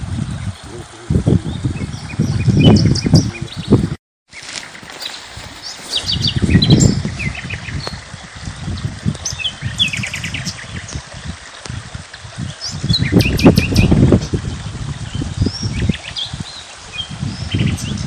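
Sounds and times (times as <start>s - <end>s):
small birds chirping: 0.3s - 3.9s, 5.0s - 8.0s.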